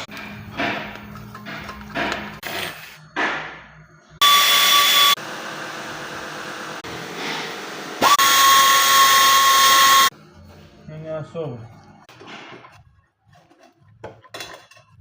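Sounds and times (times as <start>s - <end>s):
power tool motor whining: 4.2s - 10.1s.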